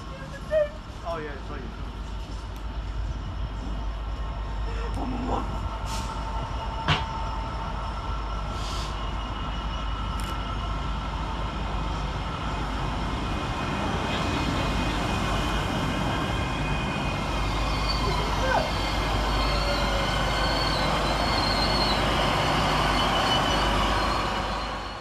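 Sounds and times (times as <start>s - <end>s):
train running noise: 0.0s - 25.0s
short hisses: 8.6s - 9.0s.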